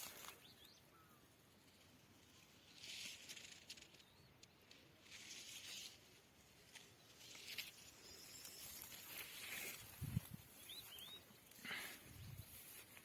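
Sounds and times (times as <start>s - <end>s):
small crackles: 0.0s - 0.8s, 1.7s - 13.0s
rustling through dry grass: 0.0s - 13.0s
faint bird chirps: 0.2s - 1.4s, 7.0s - 12.8s.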